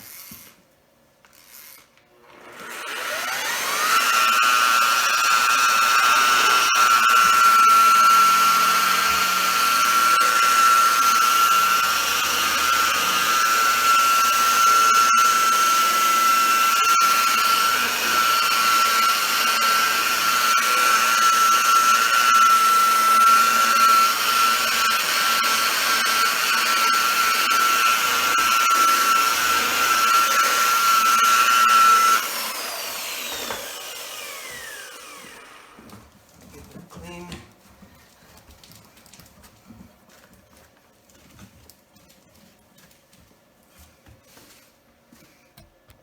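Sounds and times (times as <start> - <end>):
electric buffer motor whining: 2.2 - 36.0.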